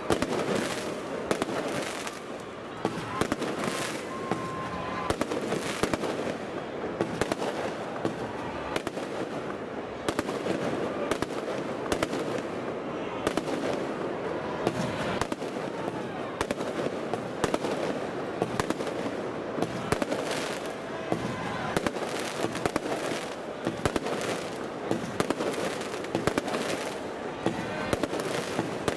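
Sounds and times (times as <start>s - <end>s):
fireworks bursting: 0.0s - 28.9s.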